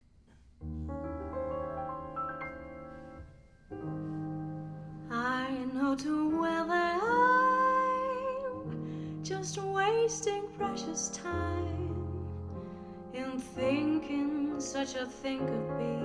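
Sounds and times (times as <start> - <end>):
jazz piano chords: 0.0 - 16.0
woman singing with vibrato: 5.1 - 12.3, 13.2 - 16.0.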